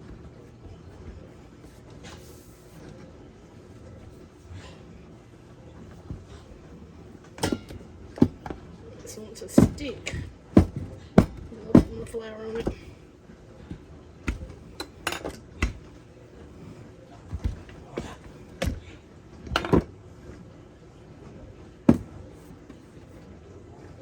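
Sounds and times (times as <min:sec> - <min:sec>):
kitchen utensils knocking and clinking: 0:07.4 - 0:08.5, 0:14.3 - 0:15.8, 0:19.6 - 0:19.9.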